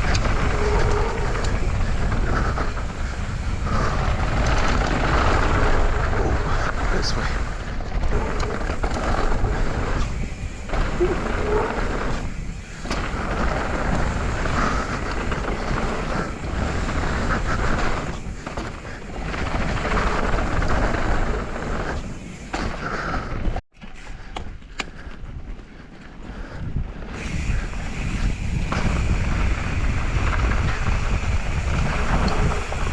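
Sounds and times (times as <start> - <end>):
mountain bike rolling on dirt: 0.0 - 32.9
wind buffeting microphone: 0.0 - 32.9.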